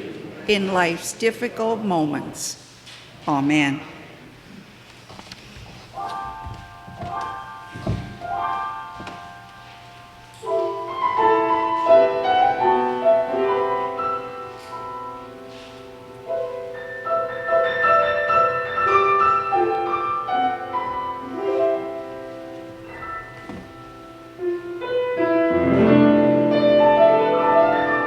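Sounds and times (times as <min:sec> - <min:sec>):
piano music: 0:05.8 - 0:28.0.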